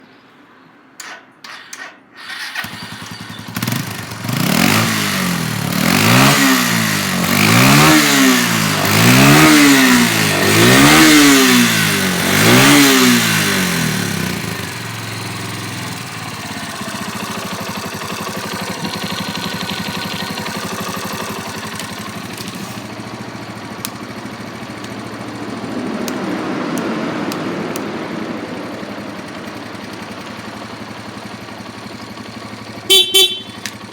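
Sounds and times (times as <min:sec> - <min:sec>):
starter clicks: 0:01.0 - 0:03.7, 0:18.6 - 0:22.9, 0:23.7 - 0:25.3, 0:26.0 - 0:28.0, 0:33.4 - 0:33.9
motorcycle engine revving and idling: 0:01.0 - 0:33.9.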